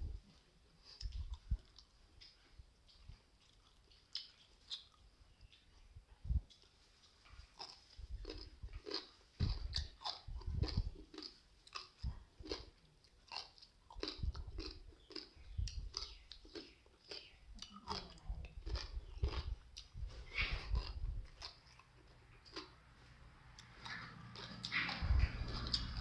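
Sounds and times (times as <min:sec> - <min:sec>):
person chewing crunchy vegetables: 0:00.8 - 0:26.0.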